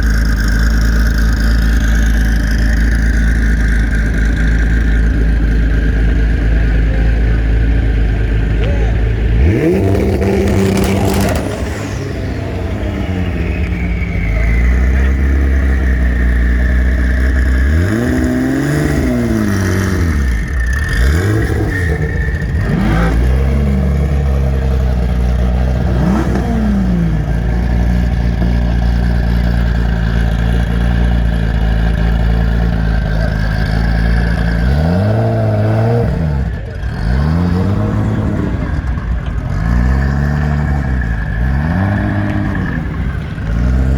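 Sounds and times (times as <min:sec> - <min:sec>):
high whine: 0:00.0 - 0:34.6
car engine idling and revving: 0:00.0 - 0:43.9.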